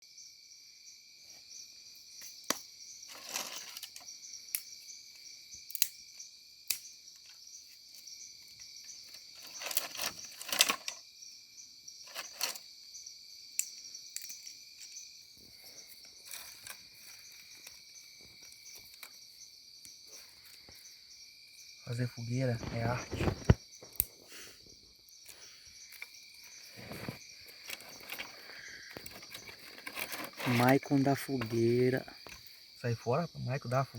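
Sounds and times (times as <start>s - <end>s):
crickets trilling: 0.0s - 33.9s
scraping and rustling: 3.1s - 4.0s, 9.1s - 11.0s, 12.1s - 12.6s, 16.0s - 17.8s, 22.6s - 23.6s, 26.0s - 32.4s.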